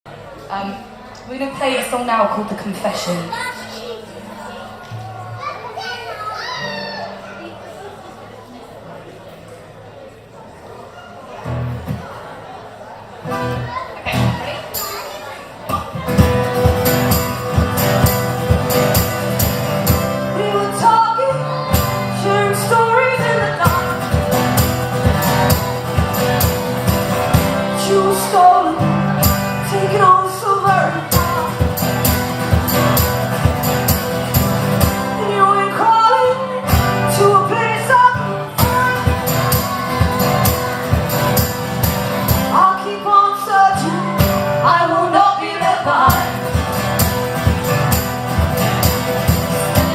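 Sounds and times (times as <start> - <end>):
live band playing: 13.4 - 49.9
person singing: 20.3 - 25.7, 27.4 - 32.8, 35.0 - 41.6, 42.3 - 46.5.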